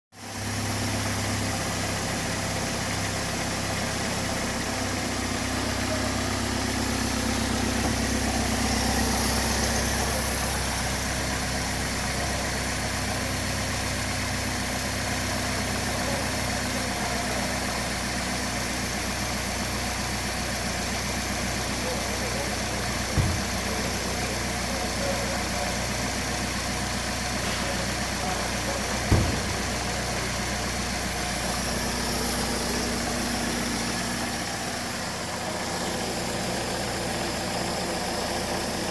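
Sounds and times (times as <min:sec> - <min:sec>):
car engine idling: 0:00.2 - 0:38.9.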